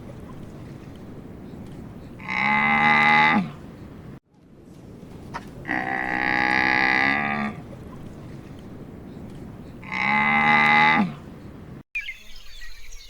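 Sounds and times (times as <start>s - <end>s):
cattle mooing: 2.2s - 3.6s, 5.6s - 7.6s, 9.8s - 11.2s.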